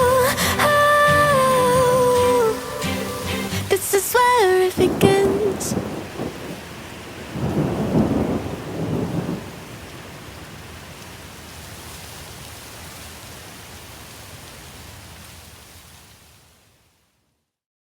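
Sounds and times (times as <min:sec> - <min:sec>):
thunder rolling: 0:00.0 - 0:09.7
rain hissing: 0:00.0 - 0:16.5.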